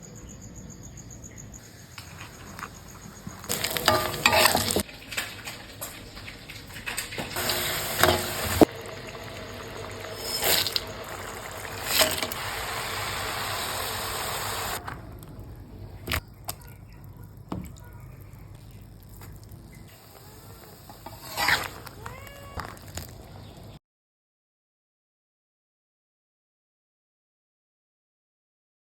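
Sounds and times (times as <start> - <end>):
steady cooking hiss: 1.6 - 23.8
utensils knocking and clinking: 3.4 - 6.1, 6.8 - 8.7.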